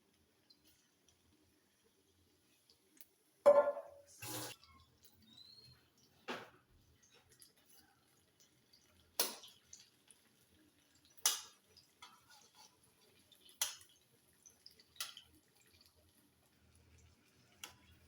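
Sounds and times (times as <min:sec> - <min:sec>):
sharp kitchen taps: 0:03.5 - 0:04.0.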